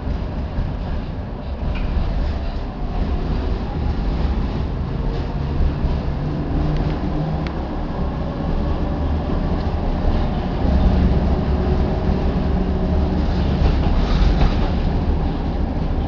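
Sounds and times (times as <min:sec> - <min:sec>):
tram wheels rumbling on rail: 0:00.0 - 0:16.0.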